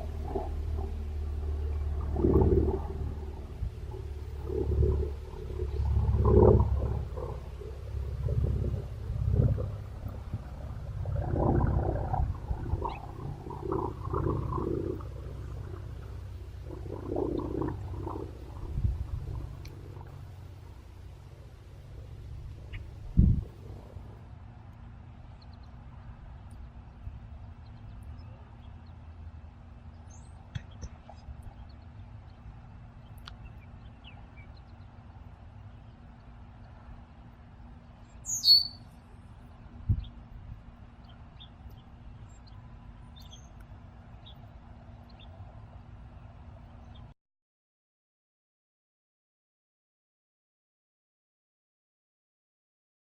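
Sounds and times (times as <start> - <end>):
low rumble: 0.0 - 38.2
songbirds chirping: 0.0 - 47.2
high downward bird call: 38.2 - 38.9.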